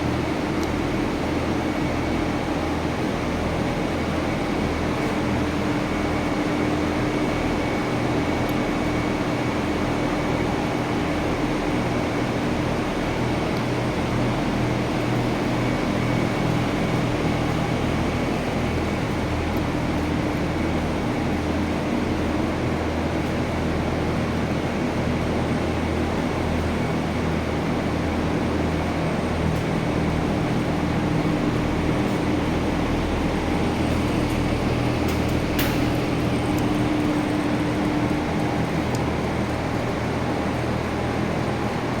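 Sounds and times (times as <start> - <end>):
industrial exhaust fan running: 0.0 - 42.0.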